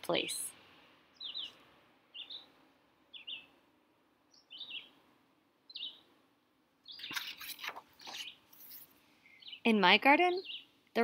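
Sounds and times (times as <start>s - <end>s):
songbird falling chirp: 6.8s - 9.7s
brief rustle: 7.0s - 9.0s.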